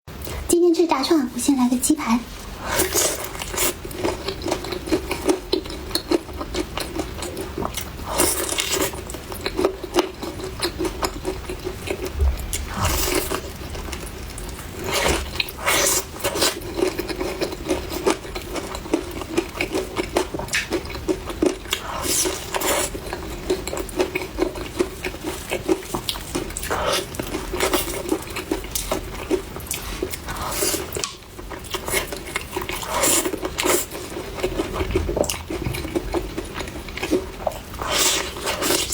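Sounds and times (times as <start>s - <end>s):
steady low hum: 7.4s - 17.7s, 34.1s - 37.9s.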